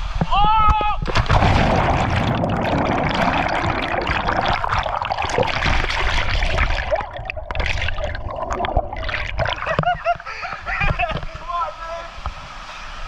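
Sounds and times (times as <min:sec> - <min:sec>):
small splashes and bubbling: 0:01.0 - 0:10.3
water churning and splashing: 0:01.0 - 0:11.8.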